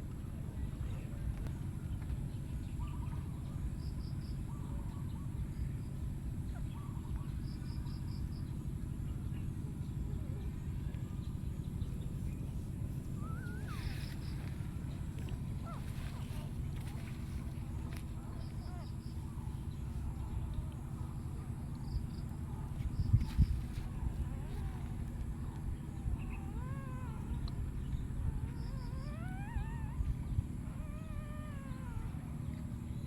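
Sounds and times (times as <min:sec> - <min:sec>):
steady low rumble: 0:00.0 - 0:33.0
animal chirps and calls: 0:13.1 - 0:14.6, 0:25.9 - 0:32.5.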